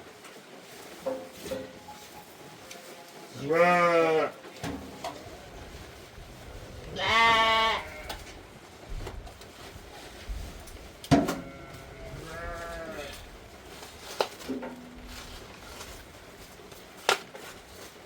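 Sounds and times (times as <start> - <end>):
sheep or goats bleating: 3.4 - 4.4, 6.5 - 8.4, 11.4 - 13.3.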